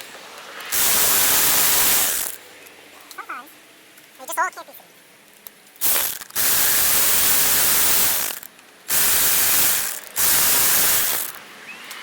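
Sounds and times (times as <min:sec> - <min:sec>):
pressurised spray hissing: 0:00.7 - 0:02.4, 0:05.8 - 0:11.4.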